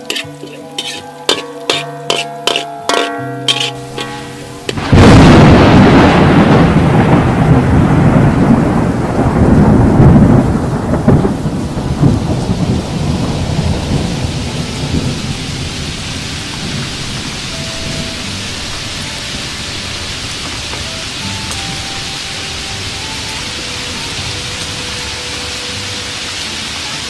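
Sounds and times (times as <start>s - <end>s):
food sizzling in hot oil: 0.0s - 6.6s, 12.2s - 27.0s.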